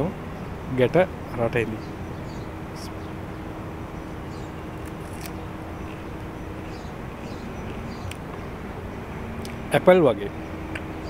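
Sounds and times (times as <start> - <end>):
crisp clicks of biting fruit: 4.8 - 6.1, 7.7 - 8.2, 9.4 - 9.6.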